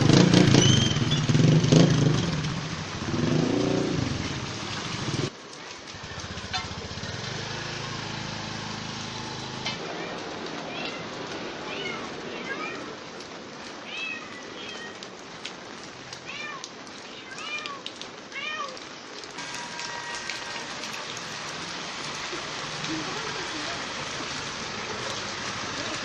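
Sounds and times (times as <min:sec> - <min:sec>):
motorcycle engine running: 0:05.9 - 0:09.4.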